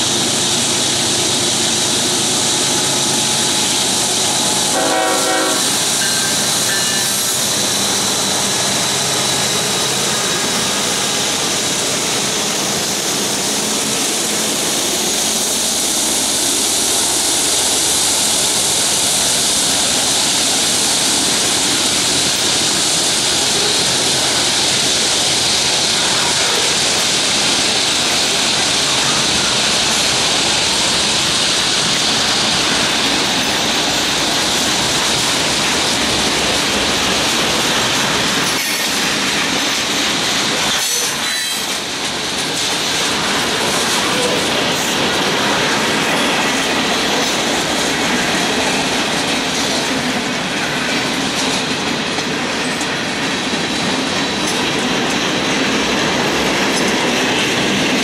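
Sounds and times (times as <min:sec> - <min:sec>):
diesel locomotive engines running: 0:00.0 - 0:58.0
train wheels rolling on rails: 0:00.0 - 0:58.0
locomotive horn: 0:04.4 - 0:07.0.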